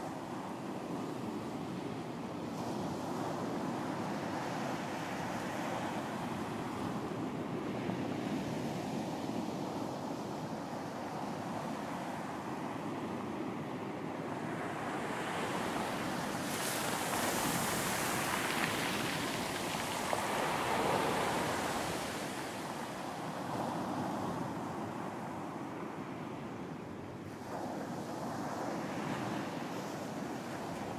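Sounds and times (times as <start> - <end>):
wind: 0.0 - 30.9
sea waves breaking on beach: 14.4 - 25.3.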